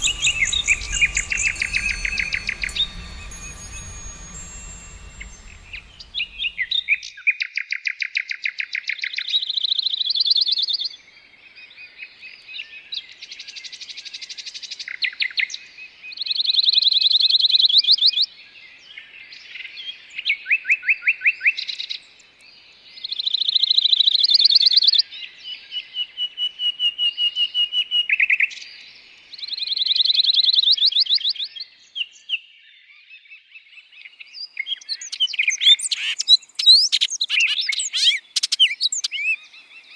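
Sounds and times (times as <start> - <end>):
songbird chirping trills: 0.0 - 6.9.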